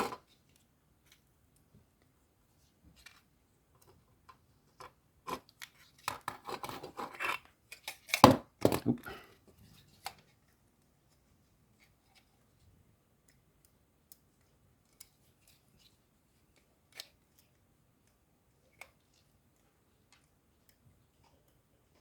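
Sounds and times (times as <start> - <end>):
light clicks of small parts: 13.2 - 22.0.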